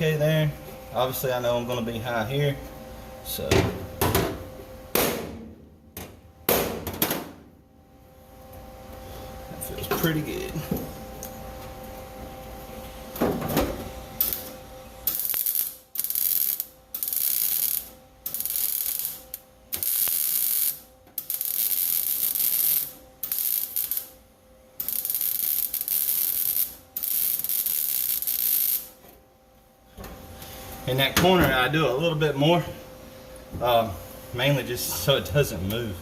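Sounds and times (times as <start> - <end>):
welder arc crackling: 14.2 - 24.2, 24.8 - 29.0.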